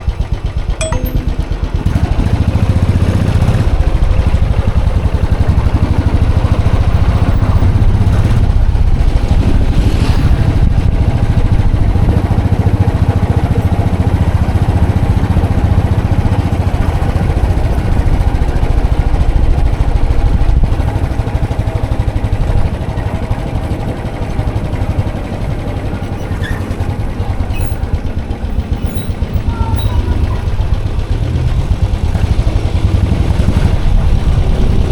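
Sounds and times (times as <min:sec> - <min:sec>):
motorcycle engine running: 0:01.6 - 0:34.9.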